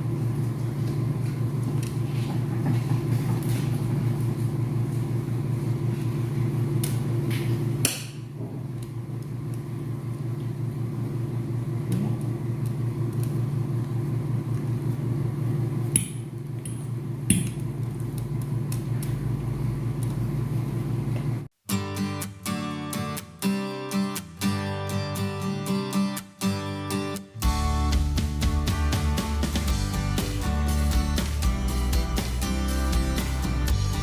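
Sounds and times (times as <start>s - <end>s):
low mechanical hum: 0.0s - 21.5s.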